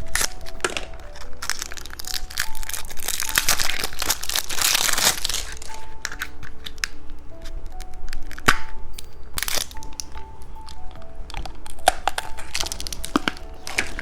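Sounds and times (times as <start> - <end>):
plastic wrapper crinkling: 0.0 - 14.0
soft background music: 0.0 - 14.0.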